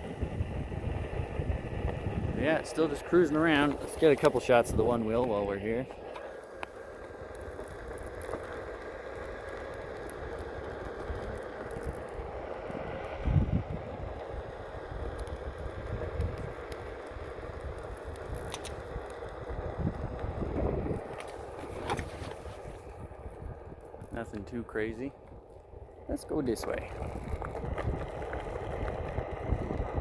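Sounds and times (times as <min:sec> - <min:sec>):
wind on microphone: 0:00.0 - 0:05.8, 0:12.7 - 0:24.4, 0:26.6 - 0:30.0
electric board road noise: 0:00.0 - 0:30.0.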